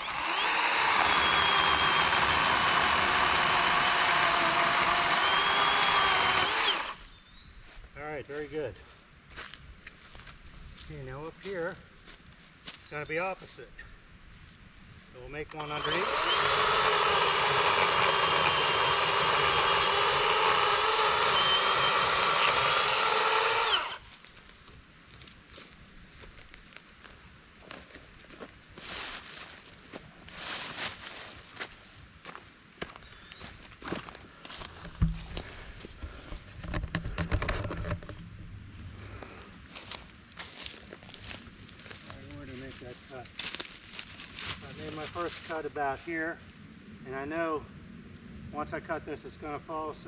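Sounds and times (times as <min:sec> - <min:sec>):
electric chainsaw cutting wood: 0:00.0 - 0:07.1, 0:15.5 - 0:24.1
footsteps: 0:07.6 - 0:12.9, 0:24.1 - 0:46.1.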